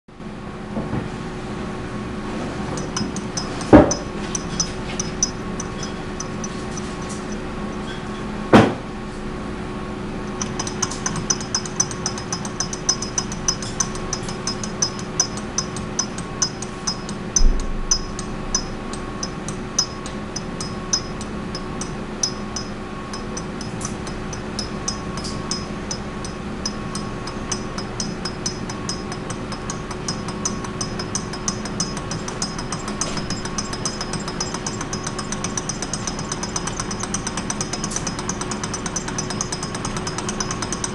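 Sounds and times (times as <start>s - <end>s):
steady hum: 0.1s - 40.9s
engine fast even ticking: 2.8s - 7.8s, 10.3s - 40.9s
sharp knocks: 8.5s - 8.8s.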